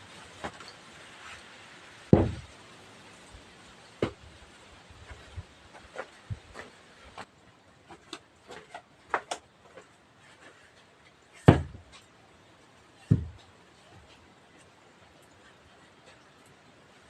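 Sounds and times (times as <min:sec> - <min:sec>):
heavy thuds: 0:02.1 - 0:02.5, 0:11.5 - 0:11.9, 0:13.1 - 0:13.4.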